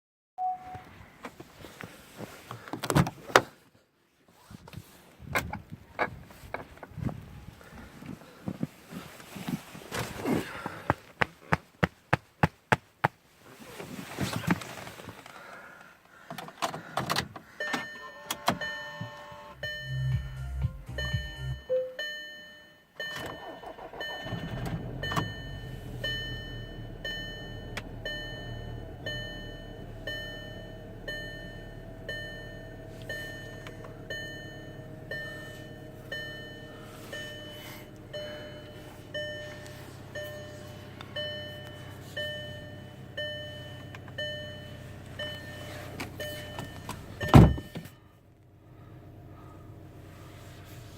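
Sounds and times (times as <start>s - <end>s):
dashboard chime beeping: 0.4s - 0.8s, 17.6s - 47.8s
car engine idling: 23.4s - 50.9s.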